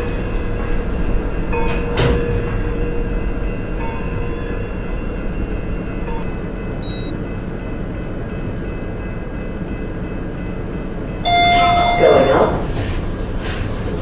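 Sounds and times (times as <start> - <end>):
multi-tone lift arrival chime: 0.0 - 9.6, 11.2 - 12.6
lift rumbling hum: 0.0 - 14.0
short high beep: 6.0 - 7.1.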